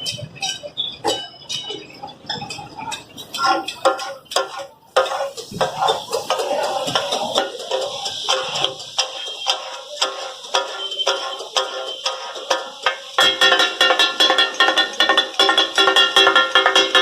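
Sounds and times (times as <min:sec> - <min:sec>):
metal spatulas chopping on griddle: 0:03.3 - 0:05.9.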